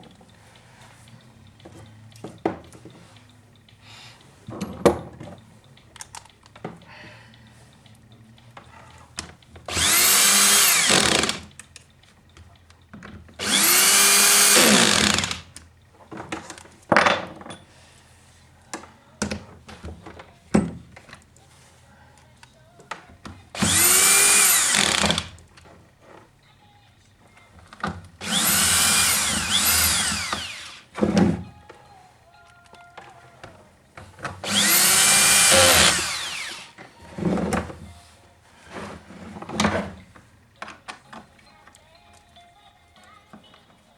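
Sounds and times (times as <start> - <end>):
electric drill motor whine: 9.7 - 11.5, 13.4 - 15.6, 23.6 - 25.4, 28.2 - 31.2, 34.4 - 37.3.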